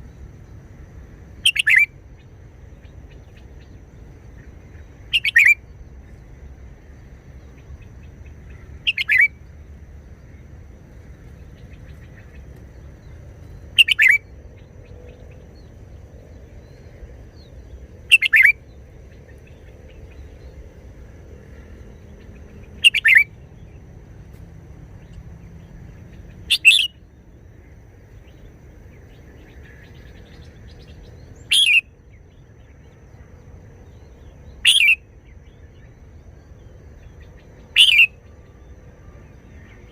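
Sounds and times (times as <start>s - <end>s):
bird singing short phrases: 1.4s - 1.9s, 5.1s - 5.6s, 8.5s - 9.4s, 13.4s - 15.4s, 18.1s - 18.6s, 22.3s - 23.3s, 26.2s - 27.1s, 29.0s - 31.9s, 33.9s - 35.0s, 37.2s - 38.2s.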